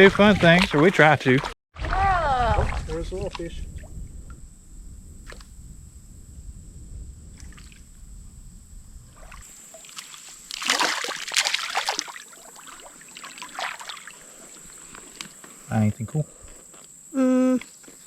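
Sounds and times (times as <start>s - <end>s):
river water splashing and trickling: 0.0s - 3.5s, 9.1s - 15.4s
loud burst of splashing: 9.3s - 12.7s.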